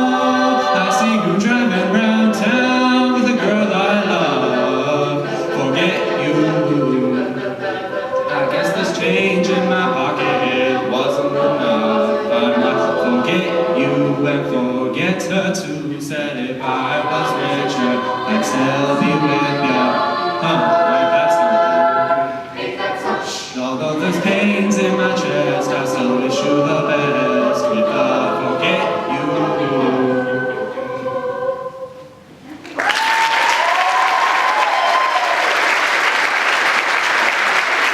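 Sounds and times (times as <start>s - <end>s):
a cappella group singing in harmony: 0.0s - 32.4s
audience applause: 32.6s - 37.9s
audience cheering: 32.6s - 37.9s.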